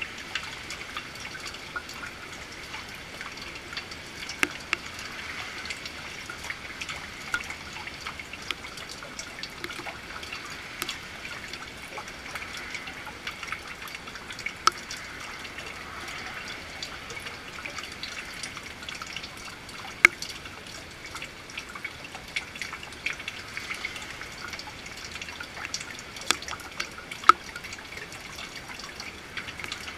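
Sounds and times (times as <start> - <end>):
rain falling: 0.0 - 29.9
water drips and splats: 0.0 - 29.9.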